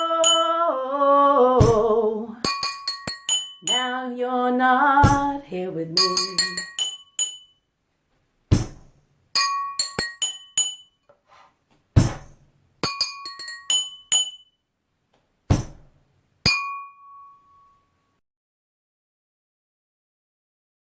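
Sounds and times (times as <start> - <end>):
glasses struck as percussion: 0.0 - 0.6, 2.4 - 4.0, 6.0 - 7.6, 9.4 - 11.0, 12.0 - 14.6, 16.4 - 17.8
heavy foot stamp: 8.5 - 9.0, 12.0 - 12.4, 15.5 - 16.0.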